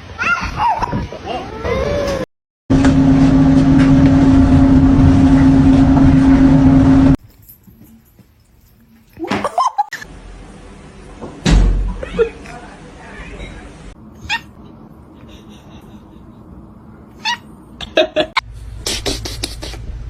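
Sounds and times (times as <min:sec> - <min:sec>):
loud steady motor hum: 0:02.7 - 0:07.2.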